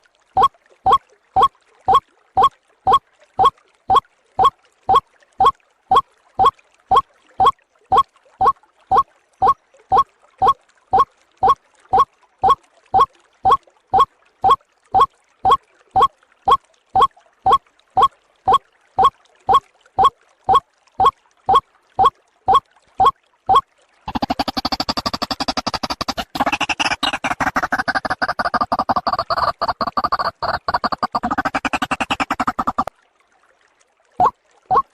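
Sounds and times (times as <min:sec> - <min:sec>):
waterhen calls: 0:00.4 - 0:08.0, 0:22.0 - 0:32.9, 0:34.2 - 0:34.9.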